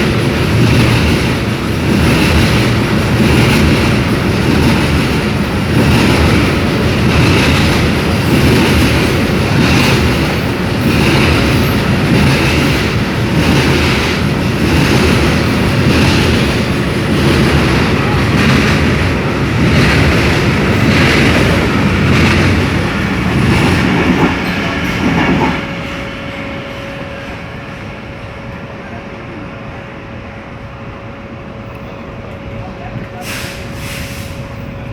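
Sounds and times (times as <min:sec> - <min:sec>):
train wheels clattering over rail joints: 0:00.0 - 0:26.0
train rumble: 0:00.0 - 0:34.9.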